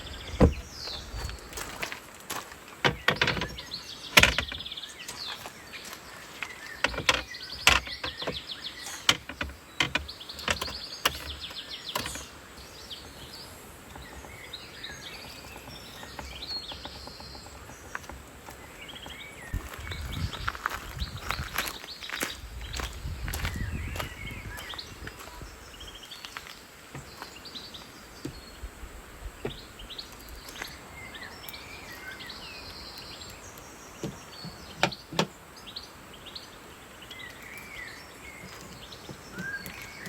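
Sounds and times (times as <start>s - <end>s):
sharp clicks and knocks: 0.0s - 5.6s, 6.4s - 20.3s, 32.9s - 35.4s
small birds chirping: 0.0s - 40.0s.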